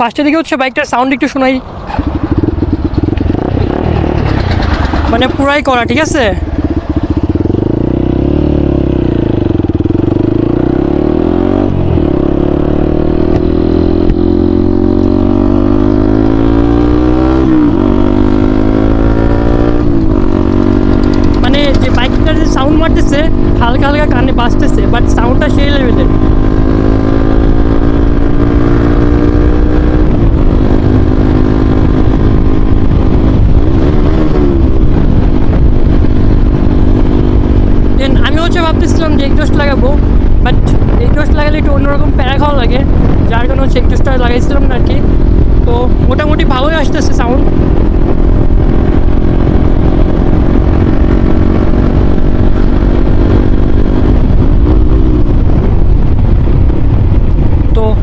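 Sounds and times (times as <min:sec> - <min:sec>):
wind rumble on microphone: 0:00.0 - 0:58.0
motorcycle exhaust running loud: 0:01.3 - 0:58.0.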